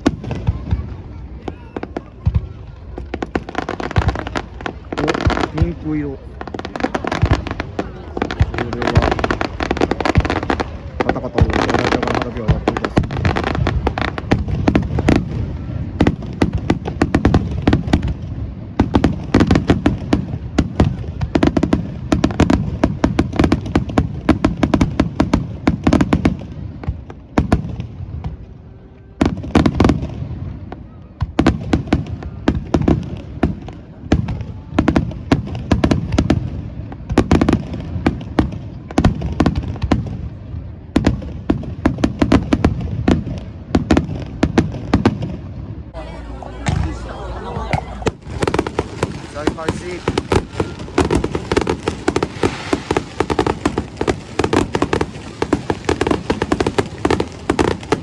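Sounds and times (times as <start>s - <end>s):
fireworks bursting: 0.0s - 26.4s, 46.0s - 58.0s.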